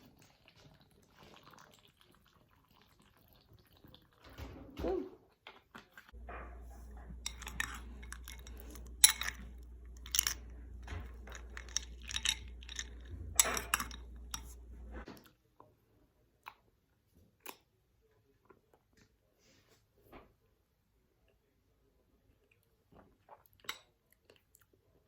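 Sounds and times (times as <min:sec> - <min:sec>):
crunching and chewing: 0:05.5 - 0:15.3
spoon clinking in ceramic bowl: 0:06.2 - 0:14.9.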